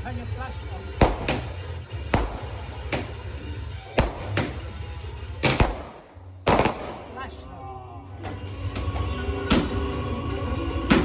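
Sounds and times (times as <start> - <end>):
steady low rumble: 0.0 - 8.2
fireworks banging: 0.2 - 7.5, 9.4 - 10.1.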